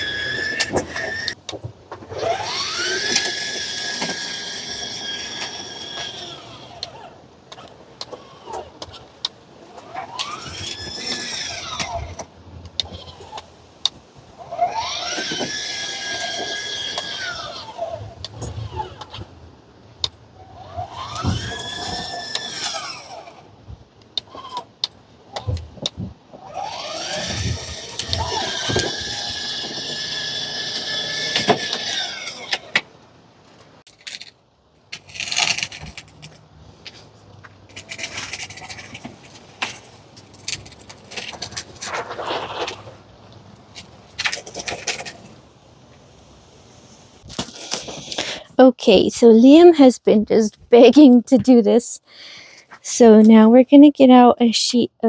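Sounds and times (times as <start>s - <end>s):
toy car electric motor whining: 0.0s - 1.4s, 2.1s - 9.1s, 9.8s - 13.4s, 14.4s - 19.3s, 20.4s - 23.5s, 26.4s - 32.9s, 37.7s - 41.6s.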